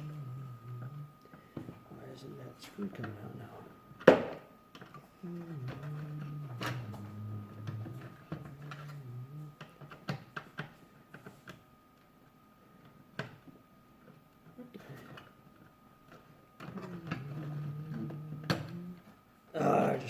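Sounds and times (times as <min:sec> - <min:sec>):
low voice: 0:16.8 - 0:20.0.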